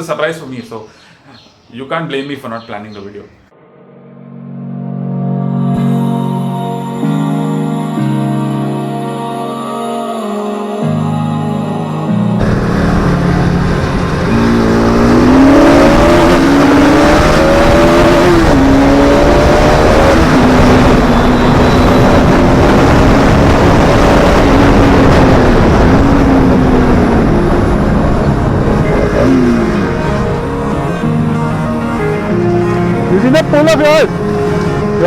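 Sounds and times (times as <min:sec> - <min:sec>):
motorcycle engine accelerating: 0:12.4 - 0:31.8, 0:33.2 - 0:35.0
rushing noise: 0:12.4 - 0:35.0.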